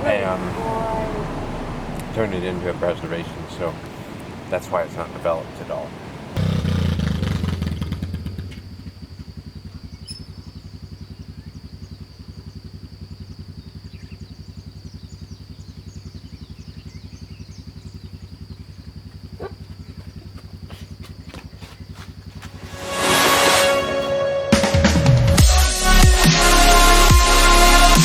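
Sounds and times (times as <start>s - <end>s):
rush of noise: 0.0s - 6.4s
engine idling: 0.0s - 24.2s.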